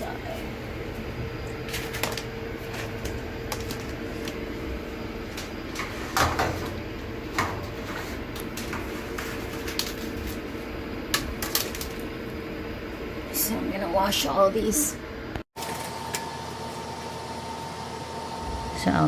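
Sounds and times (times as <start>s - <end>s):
air filters sliding and rattling: 1.6s - 12.1s.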